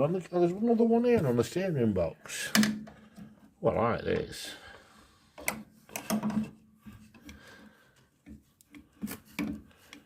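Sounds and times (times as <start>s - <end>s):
grease gun clicks and clunks: 5.4s - 7.4s.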